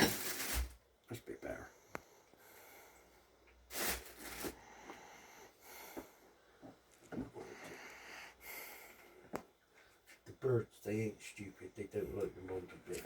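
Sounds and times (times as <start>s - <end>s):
handling rustles: 0.0s - 0.8s.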